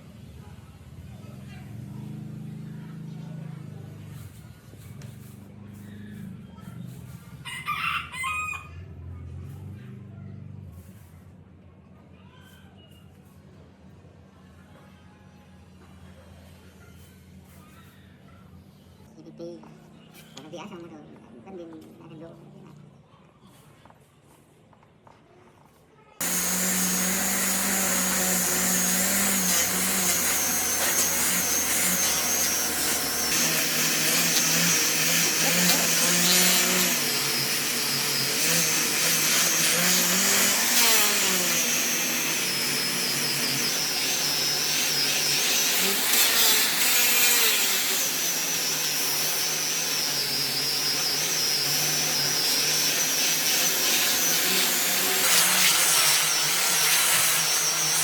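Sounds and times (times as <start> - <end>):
power tool whining: 26.2 - 58.0.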